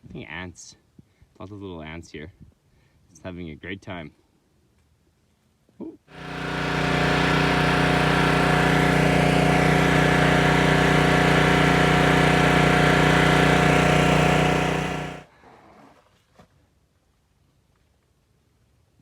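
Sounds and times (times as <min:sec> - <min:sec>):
motor-driven machine running: 0:06.1 - 0:15.2.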